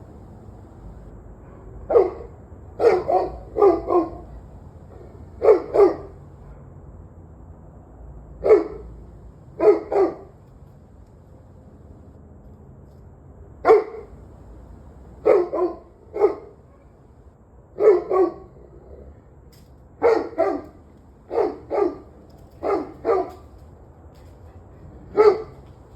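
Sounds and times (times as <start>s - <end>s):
dog barking: 1.4s - 6.7s, 8.4s - 9.0s, 9.6s - 10.4s, 13.6s - 14.2s, 15.2s - 17.1s, 17.8s - 18.6s, 20.0s - 23.5s, 25.1s - 25.6s.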